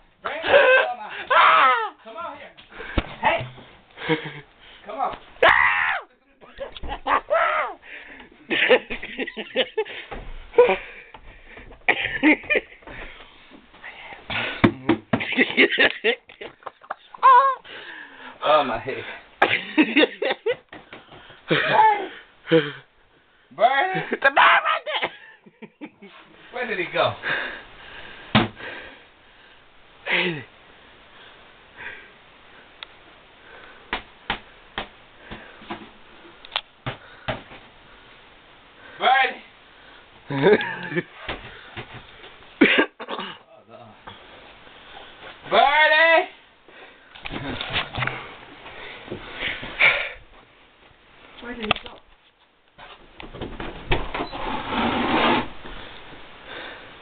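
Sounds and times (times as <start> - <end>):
objects knocking and bumping: 14.3 - 15.4, 52.8 - 54.2.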